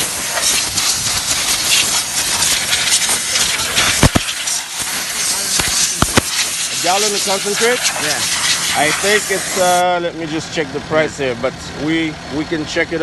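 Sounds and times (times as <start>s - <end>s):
hissing spray from nozzle: 0.0s - 9.9s.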